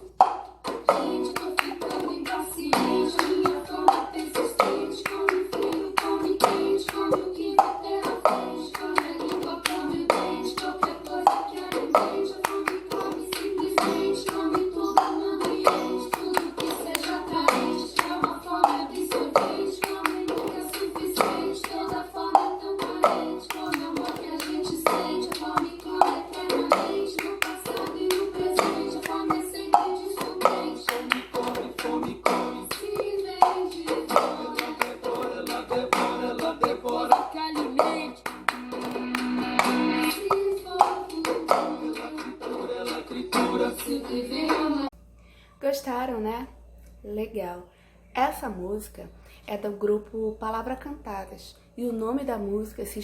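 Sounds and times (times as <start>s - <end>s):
children's song with singing: 0.0s - 45.0s
hands clapping: 0.2s - 42.3s.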